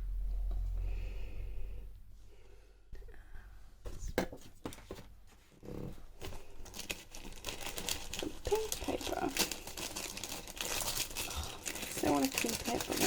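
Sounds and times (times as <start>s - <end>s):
paper and card rustling: 6.2s - 13.0s.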